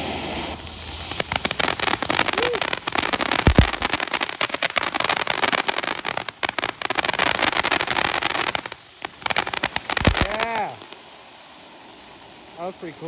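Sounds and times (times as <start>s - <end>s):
firework stars crackling: 0.0s - 13.0s
firework dull thump: 1.2s - 4.1s.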